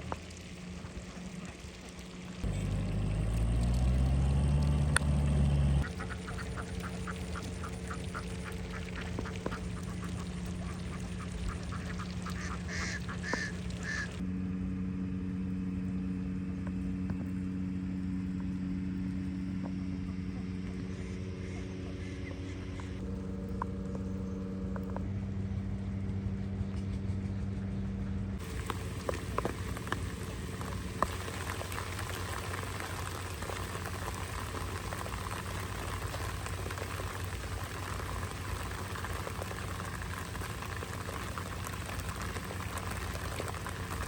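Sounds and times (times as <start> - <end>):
motor humming: 0.0 - 26.9, 28.4 - 44.0
ducks quacking: 5.8 - 14.2.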